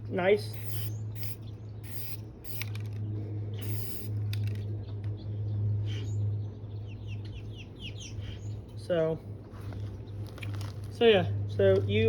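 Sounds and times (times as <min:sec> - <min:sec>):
steady low hum: 0:00.0 - 0:12.0
spray paint can hissing: 0:00.5 - 0:02.9, 0:03.6 - 0:04.2.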